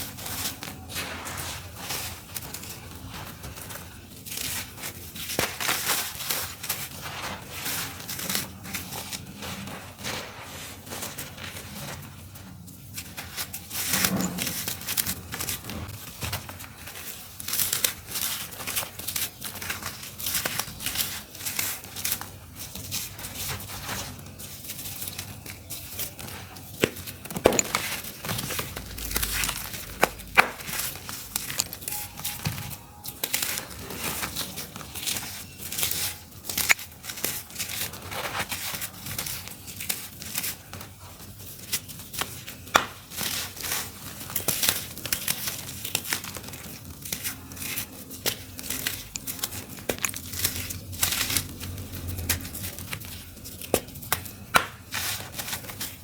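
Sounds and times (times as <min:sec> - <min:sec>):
dry dirt crumbling and crunching: 0:24.8 - 0:38.5, 0:46.6 - 0:56.0.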